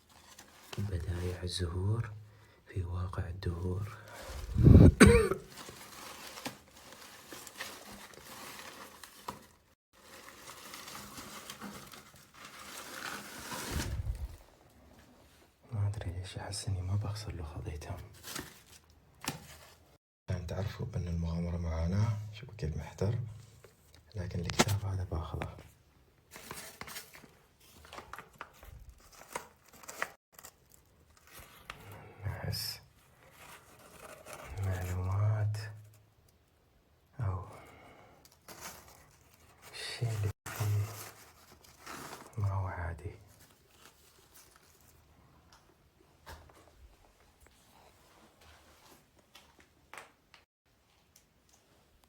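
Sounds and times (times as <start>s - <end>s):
paper rustling and crinkling: 0.0s - 1.6s, 4.0s - 15.1s, 18.0s - 20.0s, 24.4s - 25.7s, 26.3s - 32.0s, 32.9s - 35.1s, 38.2s - 42.5s, 43.2s - 50.2s
light clicks of book handling: 24.4s - 25.6s.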